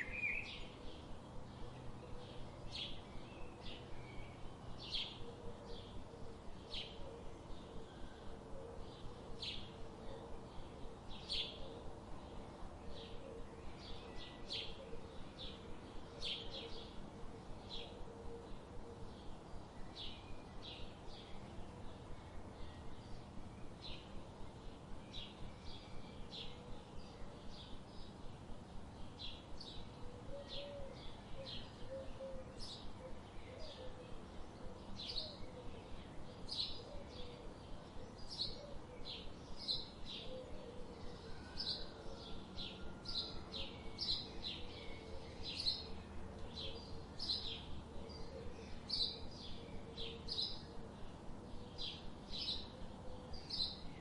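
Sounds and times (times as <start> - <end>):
soft steady hiss: 0.0 - 54.0
low wavering bird calls: 29.8 - 51.1.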